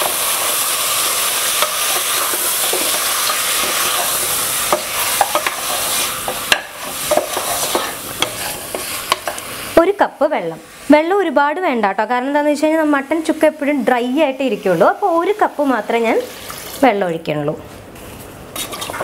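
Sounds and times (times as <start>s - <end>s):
meat sizzling in hot oil: 0.0s - 11.2s
spatula scraping and knocking pot: 1.6s - 9.4s.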